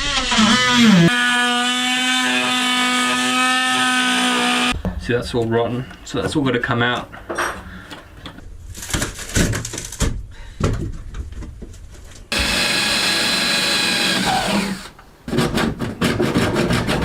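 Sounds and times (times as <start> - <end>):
power tool whining: 0.0 - 4.8, 12.3 - 15.0
wood being pried and broken: 12.3 - 17.0.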